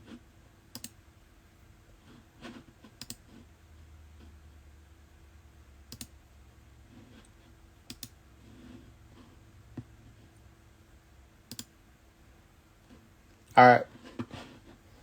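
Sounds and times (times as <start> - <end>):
computer clicks: 0.7 - 1.0, 3.0 - 3.2, 5.9 - 6.2, 7.9 - 8.2, 11.5 - 11.7.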